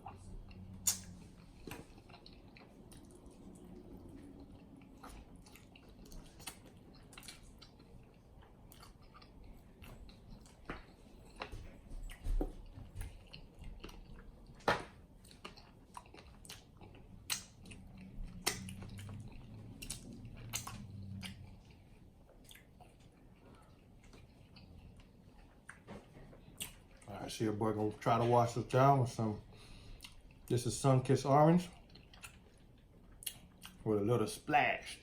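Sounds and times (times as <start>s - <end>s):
man biting and chewing: 0.0s - 25.8s
wet smacks and clicks: 0.8s - 3.2s, 16.1s - 19.2s, 19.8s - 21.4s.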